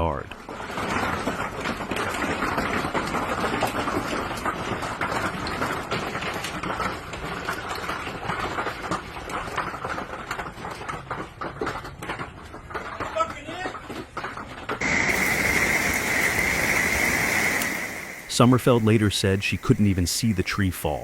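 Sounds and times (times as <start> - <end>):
heavy rain pouring: 14.8 - 21.0
raindrops ticking on surfaces: 14.8 - 21.0.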